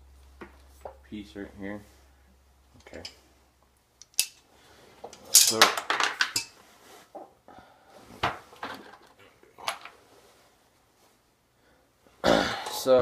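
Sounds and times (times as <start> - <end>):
metal parts clinking and rattling: 4.0 - 4.4, 5.2 - 6.5.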